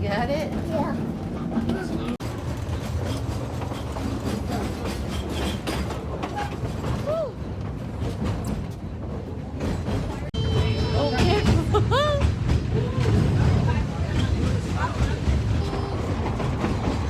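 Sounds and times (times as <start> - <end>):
train car rumbling on rails: 0.0 - 17.0.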